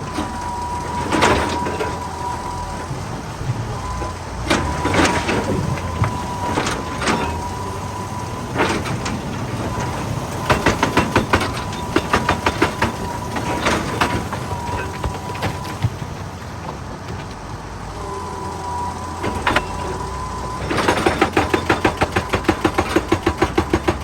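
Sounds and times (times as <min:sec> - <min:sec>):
diesel engine rumbling: 0:00.0 - 0:24.0
thin steady whine: 0:17.3 - 0:22.3.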